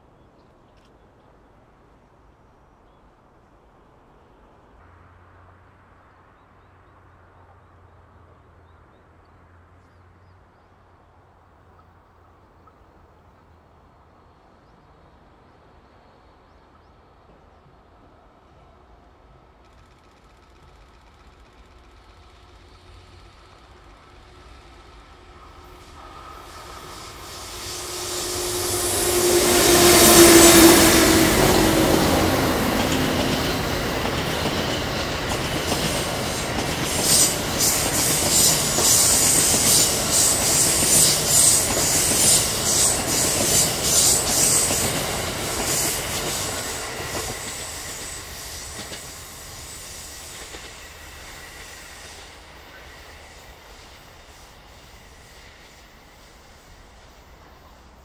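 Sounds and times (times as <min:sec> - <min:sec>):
electric locomotive hum: 0:16.6 - 0:58.0
train wheels clattering on rails: 0:19.6 - 0:57.3.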